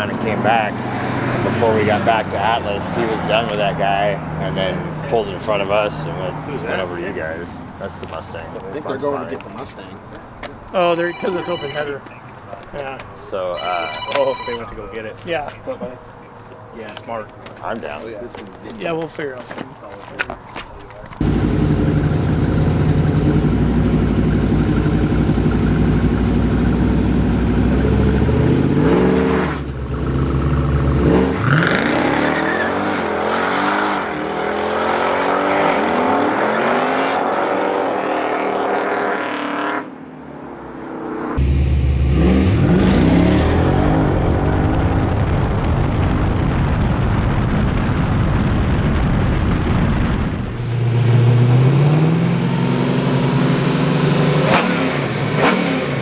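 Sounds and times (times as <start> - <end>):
race car engines revving: 0.0 - 46.1, 50.2 - 56.0.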